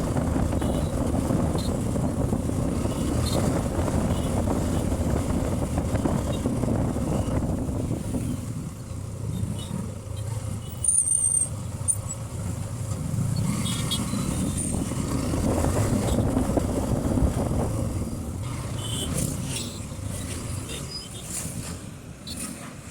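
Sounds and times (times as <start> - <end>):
motorcycle engine rumbling: 0.0 - 9.7
road and wind noise: 0.0 - 22.9.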